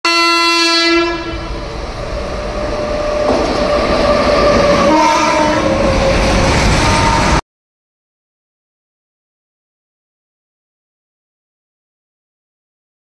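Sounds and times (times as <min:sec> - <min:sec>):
locomotive horn blast: 0:00.0 - 0:01.7, 0:04.6 - 0:06.2, 0:06.8 - 0:07.4
train rumbling and rattling on track: 0:00.6 - 0:07.4.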